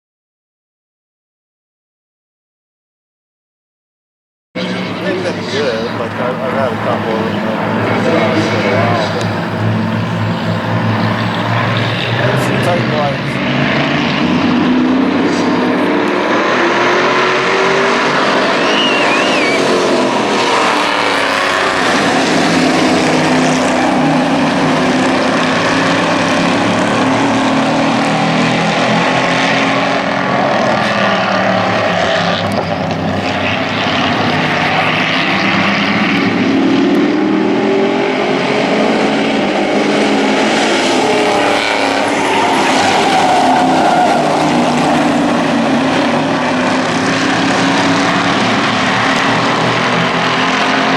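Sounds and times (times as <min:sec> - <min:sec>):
model race truck engines: 0:04.6 - 0:50.9.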